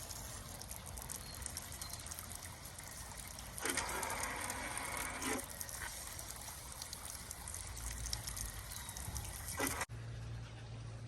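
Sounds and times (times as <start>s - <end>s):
water trickling and splashing: 0.0s - 9.9s
low hum: 9.6s - 11.0s.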